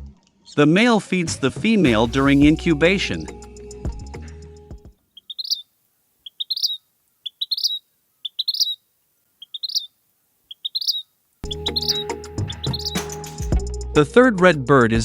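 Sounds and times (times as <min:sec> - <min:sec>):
music: 0:00.0 - 0:00.3, 0:01.2 - 0:04.9, 0:11.4 - 0:15.0
bird singing rising phrase: 0:05.2 - 0:05.6, 0:06.3 - 0:08.8, 0:09.4 - 0:09.9, 0:10.5 - 0:13.3.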